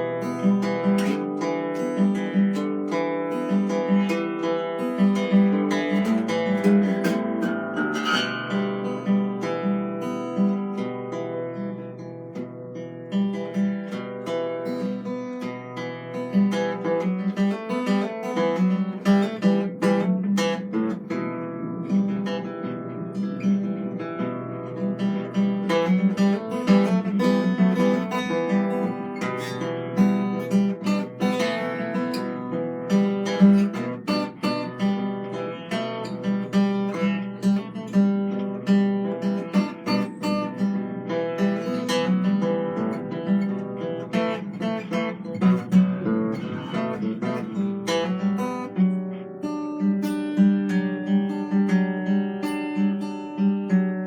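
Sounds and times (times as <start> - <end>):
plucked string instrument solo: 0.0 - 54.0.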